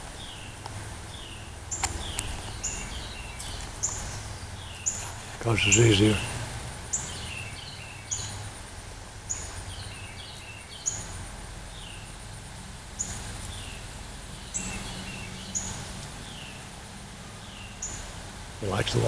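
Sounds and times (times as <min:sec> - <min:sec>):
low steady hum: 0:00.0 - 0:19.0
songbird chirping: 0:00.0 - 0:19.0.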